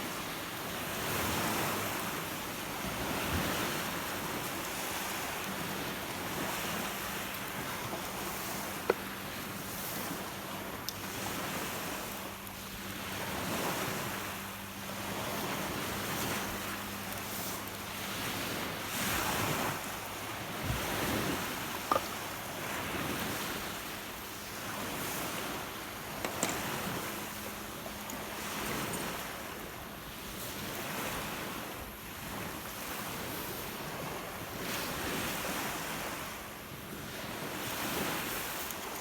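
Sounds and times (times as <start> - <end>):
lake waves breaking on shore: 0.0 - 39.0.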